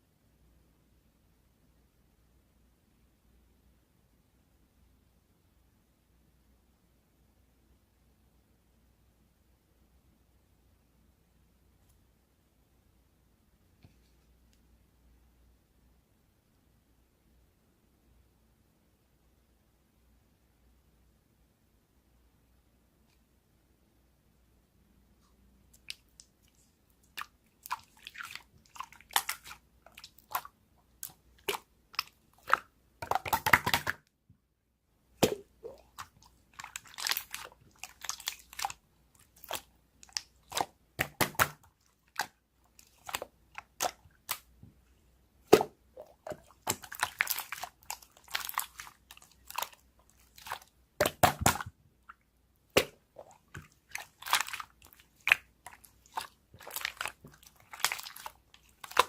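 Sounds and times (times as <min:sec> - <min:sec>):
slime squeezed by hand: 0:45.4 - 0:51.7, 0:52.7 - 0:59.0.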